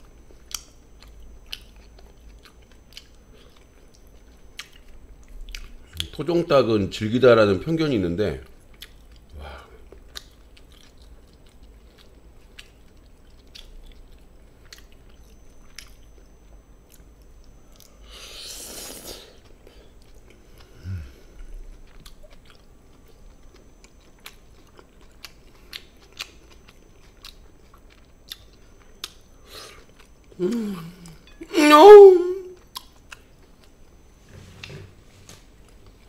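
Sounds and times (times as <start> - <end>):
chewing with wet mouth clicks: 0.0 - 6.2, 8.4 - 18.0, 21.7 - 30.4, 32.6 - 34.0.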